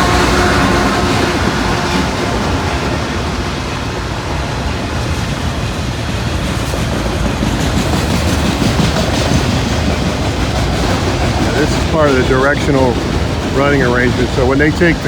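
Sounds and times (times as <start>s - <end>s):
rail joints clicking: 0.0s - 15.0s
train wheels rumbling on rails: 0.0s - 15.0s.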